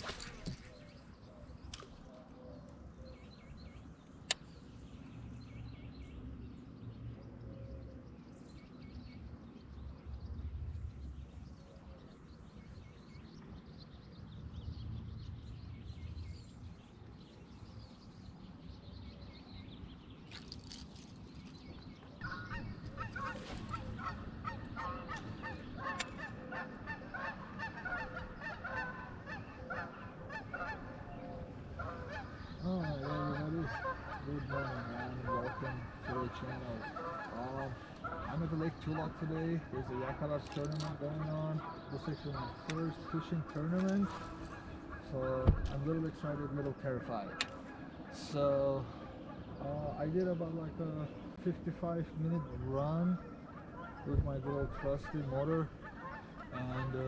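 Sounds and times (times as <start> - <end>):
geese honking: 22.2 - 57.0.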